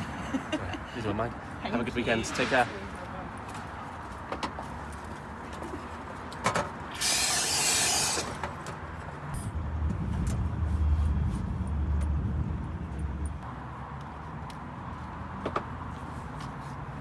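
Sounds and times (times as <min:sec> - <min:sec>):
loud hiss: 0:06.9 - 0:08.4.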